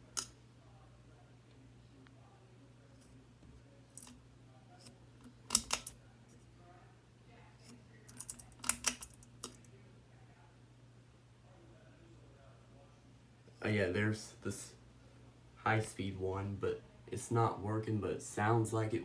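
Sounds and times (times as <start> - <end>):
sharp clicks and rattles: 5.2 - 6.0, 8.1 - 9.7.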